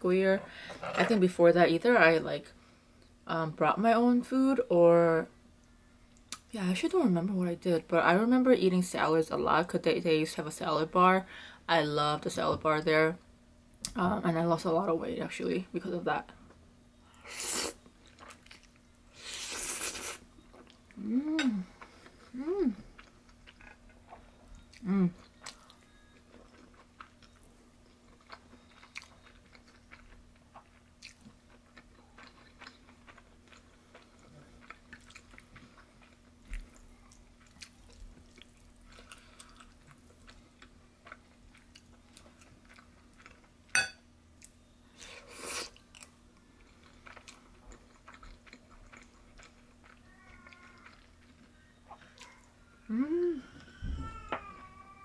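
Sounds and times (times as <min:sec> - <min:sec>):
person chewing food: 0:18.0 - 0:18.8, 0:19.4 - 0:52.6.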